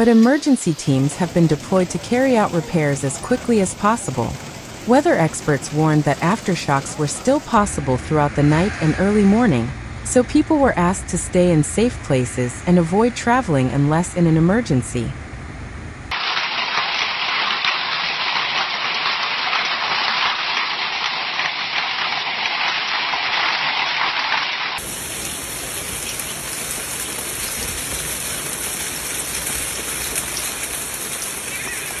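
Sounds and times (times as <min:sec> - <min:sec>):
heavy rain pouring: 0:00.0 - 0:09.5, 0:16.1 - 0:32.0.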